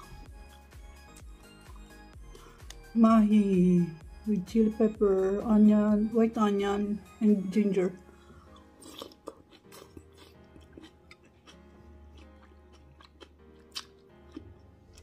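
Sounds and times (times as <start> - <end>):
faint background music: 0.0 - 15.0
chewing and wet mouth sounds: 8.0 - 15.0.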